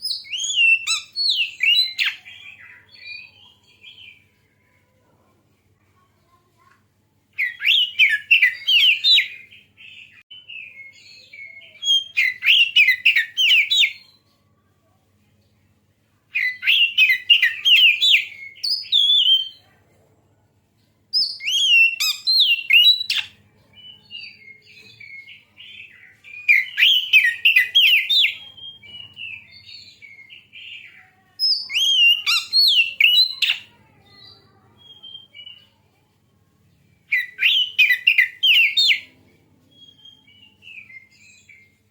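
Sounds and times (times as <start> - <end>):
bird singing whistled phrases: 0.0 - 3.4, 7.4 - 14.1, 16.4 - 19.6, 21.2 - 30.6, 31.4 - 33.7, 34.8 - 35.7, 37.1 - 39.1
soft bird twittering: 21.2 - 36.0.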